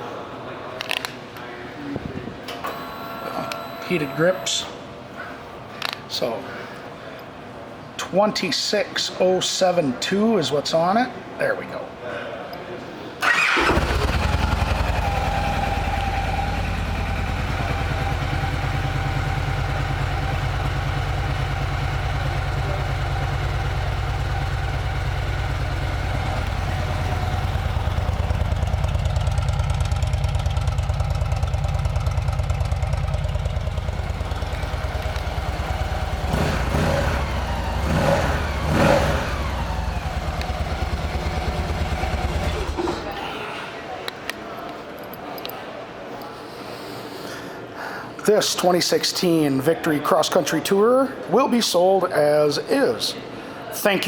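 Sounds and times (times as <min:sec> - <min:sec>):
motorcycle engine revving: 0:13.2 - 0:43.1
motorcycle engine starting and idling: 0:13.2 - 0:43.2.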